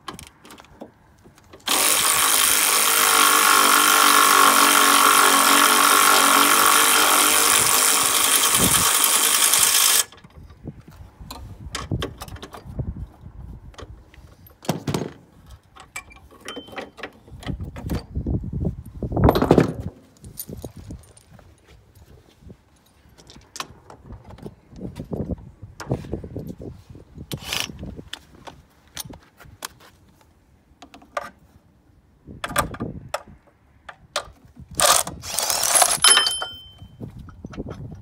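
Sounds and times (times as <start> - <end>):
power tool running: 1.6 - 10.1, 34.8 - 36.0
metallic clicks of tools handled: 34.2 - 38.0.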